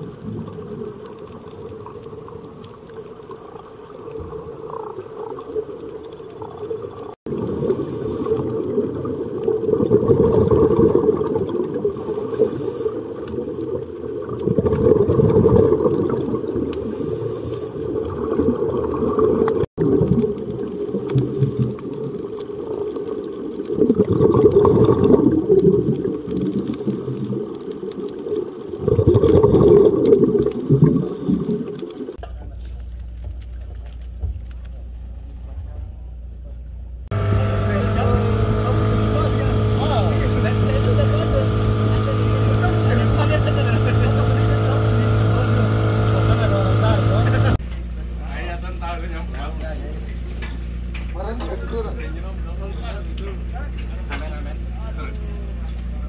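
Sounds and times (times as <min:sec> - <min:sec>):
rushing water: 0:00.0 - 0:32.2, 0:37.1 - 0:47.6.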